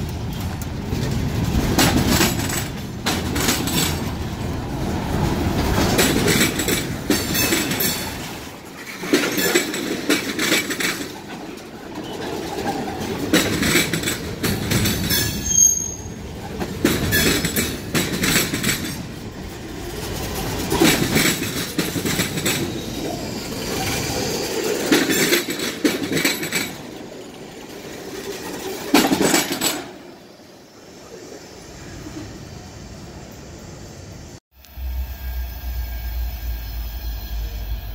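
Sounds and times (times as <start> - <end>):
wheels clacking over rail joints: 0.0 - 30.3
high wheel squeal: 15.1 - 17.6, 22.6 - 25.3, 34.7 - 37.9.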